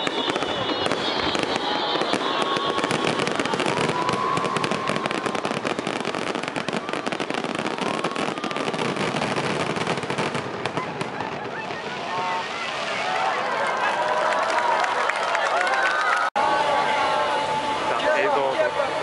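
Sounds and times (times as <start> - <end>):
fireworks crackling: 0.0 - 13.8.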